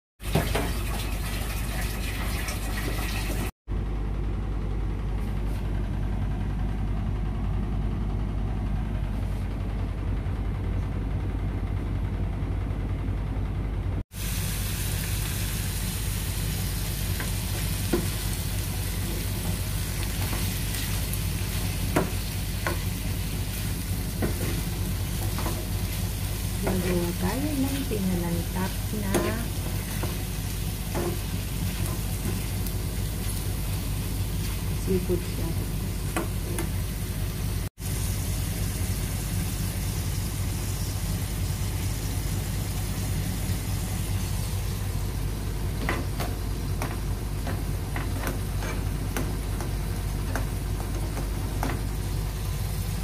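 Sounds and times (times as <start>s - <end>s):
food sizzling in a wok: 14.1s - 53.0s.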